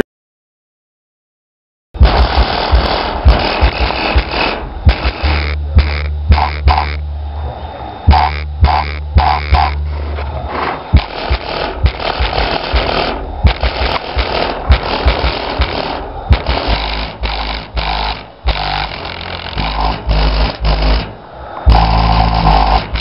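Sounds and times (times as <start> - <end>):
buzzing distortion: 2.0 - 23.0.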